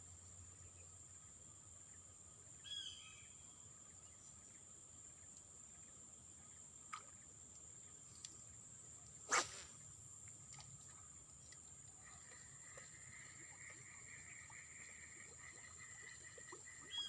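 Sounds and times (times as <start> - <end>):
faint chirp: 0.1 - 6.7, 12.0 - 17.0.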